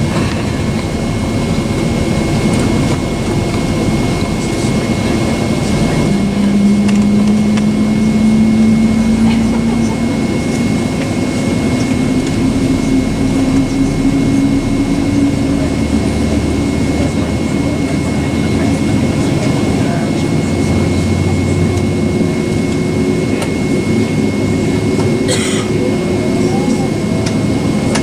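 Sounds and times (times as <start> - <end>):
jet engine rush in cabin: 0.0 - 28.0.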